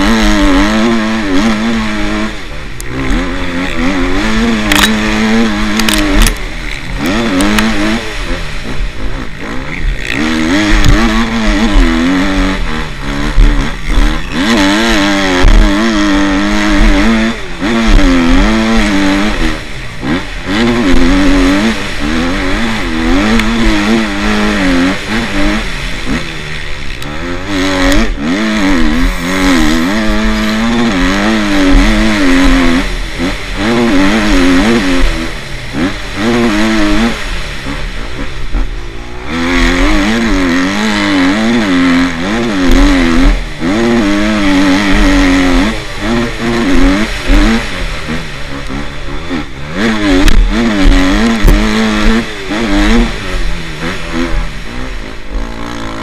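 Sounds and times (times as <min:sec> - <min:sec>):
motocross bike engines revving: 0:00.0 - 0:56.0.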